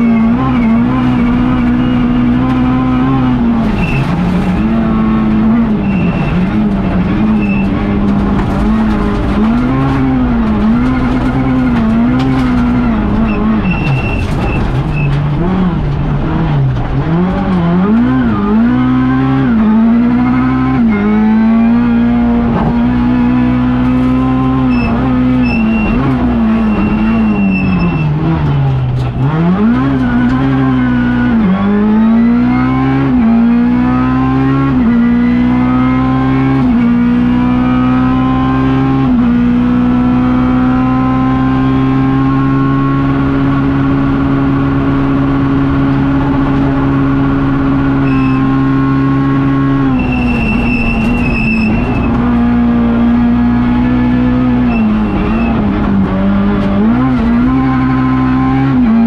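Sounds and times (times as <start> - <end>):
rally car engine accelerating: 0.0 - 59.0
brief high squeals: 50.0 - 52.1.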